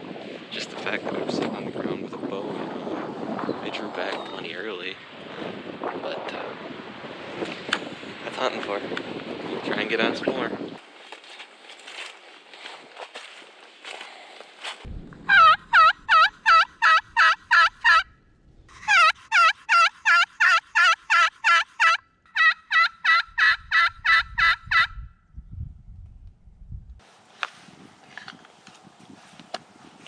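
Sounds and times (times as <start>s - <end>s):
low rumble: 14.8s - 17.2s, 18.0s - 18.8s
turkey yelping: 15.3s - 18.1s, 18.7s - 25.0s.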